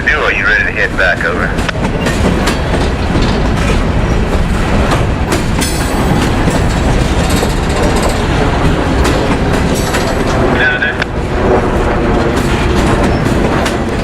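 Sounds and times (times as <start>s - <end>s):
freight train rumbling past: 0.0s - 14.0s
train wheels clicking over rail joints: 0.9s - 14.0s.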